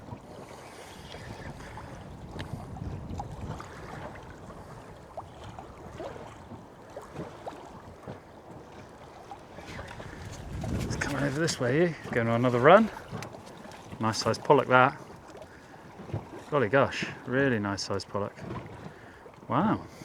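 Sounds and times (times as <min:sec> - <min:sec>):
wind buffeting microphone: 0:00.0 - 0:06.6, 0:09.5 - 0:15.2
water slapping boat hull: 0:00.0 - 0:20.0
boat clicks and creaks: 0:01.0 - 0:02.6, 0:09.4 - 0:19.7.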